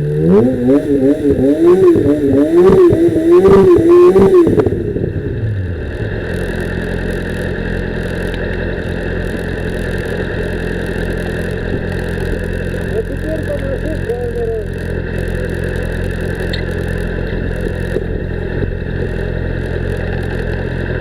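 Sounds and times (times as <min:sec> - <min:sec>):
motorcycle engine revving down to idle: 0:00.0 - 0:21.0.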